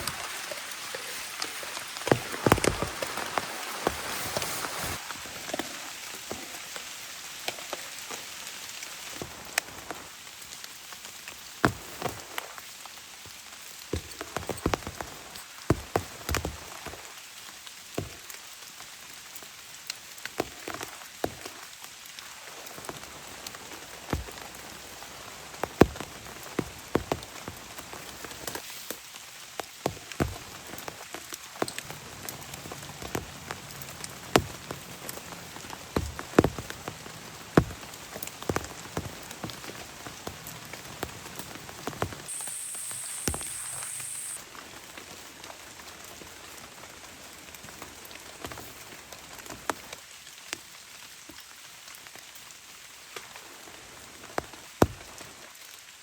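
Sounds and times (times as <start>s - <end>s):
large raindrops tapping: 0.0s - 28.6s, 29.6s - 44.4s
steady rain: 0.0s - 56.0s.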